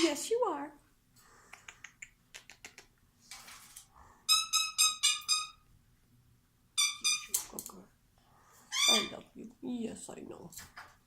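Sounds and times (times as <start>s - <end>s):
parrot calls: 4.3s - 5.6s, 6.8s - 7.4s, 8.7s - 9.2s.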